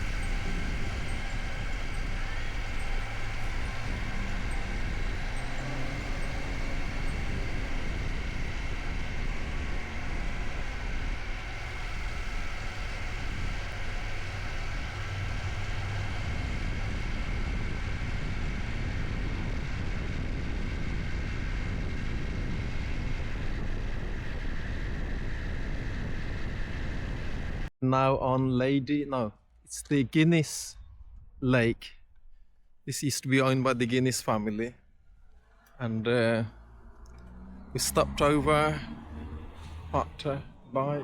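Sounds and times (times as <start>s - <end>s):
road noise: 0.0s - 25.1s, 32.9s - 41.0s
motorcycle engine drone: 0.0s - 27.7s, 29.8s - 41.0s
wind noise: 0.0s - 28.3s, 30.4s - 32.4s.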